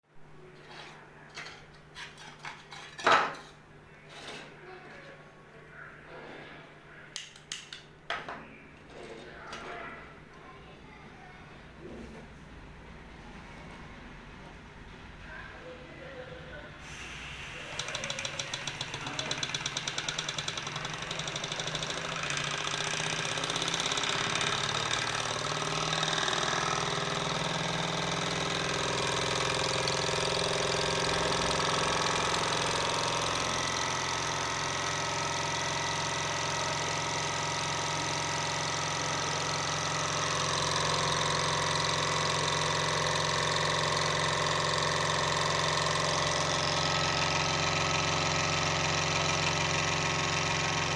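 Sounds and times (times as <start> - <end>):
model engine clicking and humming: 17.4 - 50.9.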